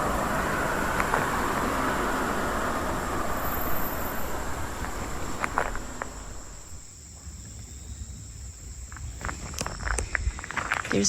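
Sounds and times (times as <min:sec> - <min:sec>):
broad rushing noise: 0:00.0 - 0:06.8
footsteps crunching: 0:00.0 - 0:06.8, 0:08.9 - 0:11.0
crickets chirring: 0:00.0 - 0:11.0.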